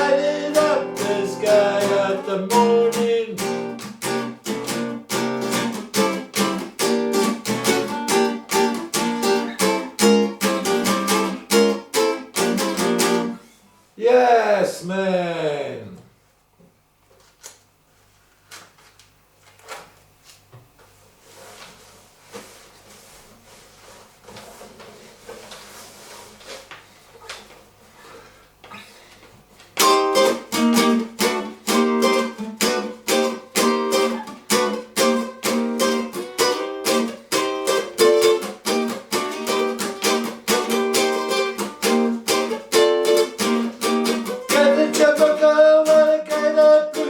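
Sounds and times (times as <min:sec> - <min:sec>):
strummed acoustic string instrument: 0:00.0 - 0:13.4, 0:29.8 - 0:47.0.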